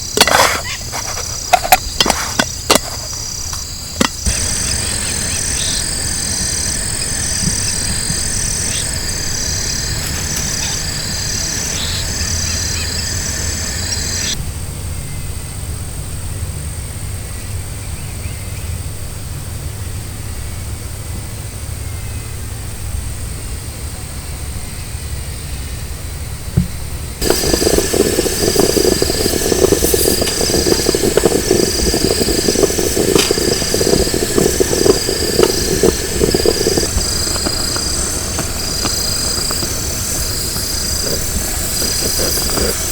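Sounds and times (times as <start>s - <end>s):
night animals calling: 4.2s - 14.4s.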